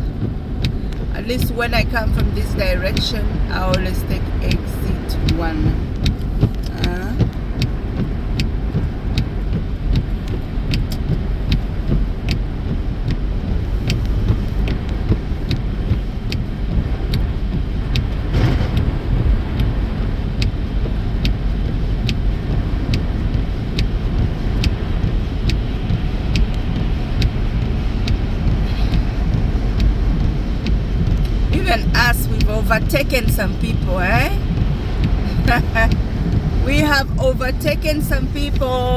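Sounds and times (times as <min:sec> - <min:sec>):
car road noise rumble: 0:00.0 - 0:38.9
light ticking: 0:00.0 - 0:38.9
brief rush: 0:18.3 - 0:19.9.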